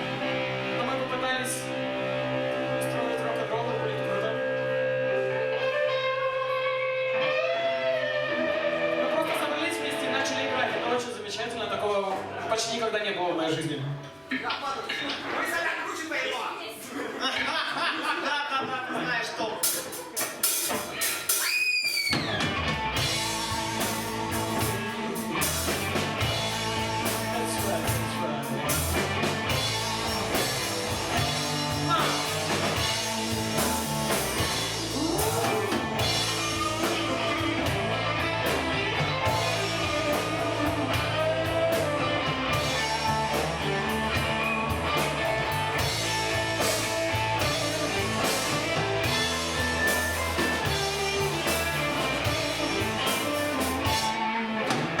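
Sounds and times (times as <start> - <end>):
live rock band playing: 0.0 - 12.5, 19.6 - 55.0.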